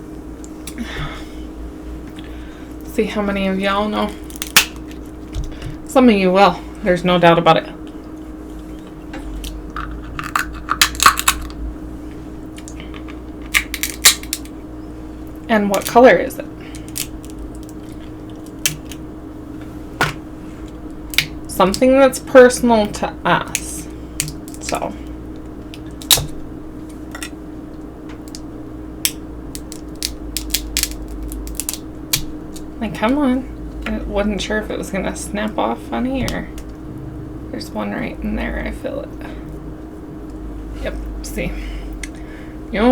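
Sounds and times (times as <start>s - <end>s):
seafood shells cracking: 4.1s - 5.8s, 9.4s - 11.6s, 12.5s - 14.6s, 16.7s - 19.1s, 20.8s - 21.8s, 23.5s - 26.4s, 28.2s - 32.8s.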